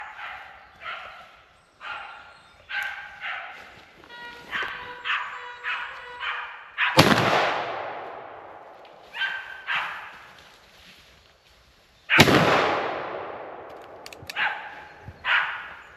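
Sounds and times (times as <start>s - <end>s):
hunting dogs barking: 0.0s - 3.8s, 4.5s - 7.0s, 9.1s - 10.2s, 14.1s - 15.9s
loud echoing gunshot: 7.0s - 8.8s, 12.1s - 14.6s.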